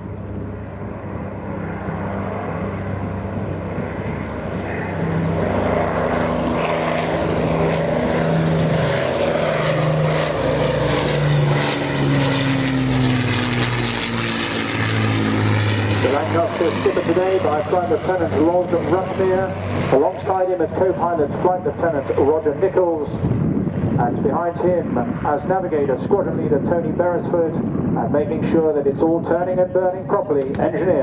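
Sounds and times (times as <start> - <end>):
propeller aircraft engines flying past: 0.0 - 31.0.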